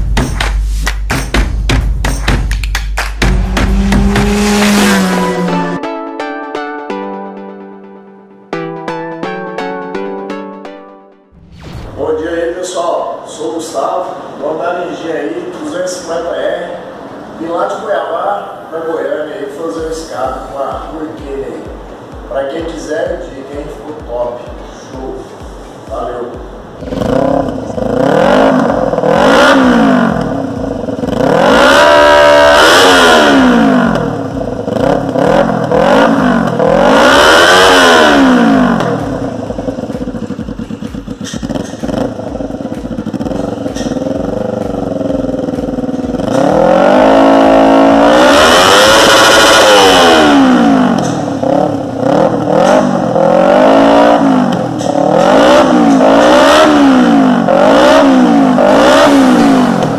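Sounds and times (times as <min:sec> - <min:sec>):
motorcycle engine revving: 0:03.2 - 0:05.8, 0:26.7 - 0:59.9.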